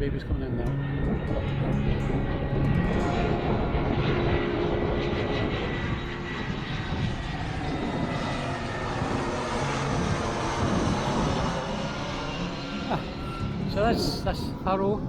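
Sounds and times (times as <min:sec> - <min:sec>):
airplane engine rumble: 0:00.0 - 0:15.0
high engine whine: 0:00.0 - 0:15.0.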